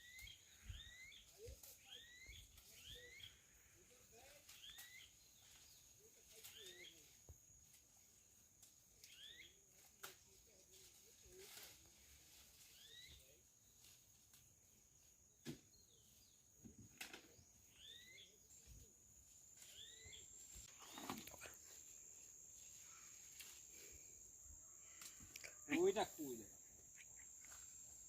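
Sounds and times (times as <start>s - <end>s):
bird chirping: 0.0s - 3.6s, 9.0s - 9.6s, 17.3s - 18.9s, 19.6s - 23.2s, 24.4s - 28.0s
high insect drone: 17.7s - 28.0s.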